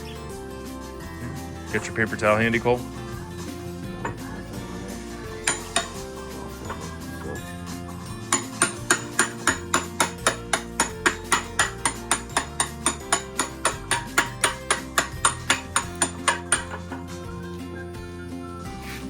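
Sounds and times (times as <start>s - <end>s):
background music: 0.0s - 19.0s
hammer tapping on metal: 5.3s - 7.2s, 8.2s - 17.2s.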